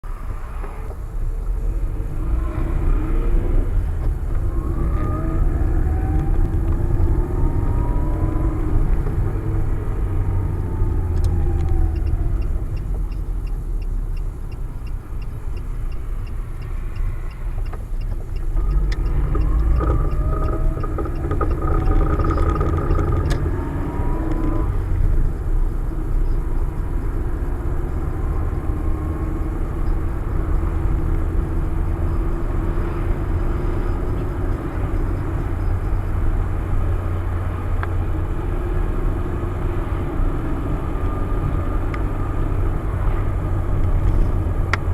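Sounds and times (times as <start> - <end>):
vehicle rumble: 0.0 - 44.9
faint fast ticking: 10.9 - 23.6.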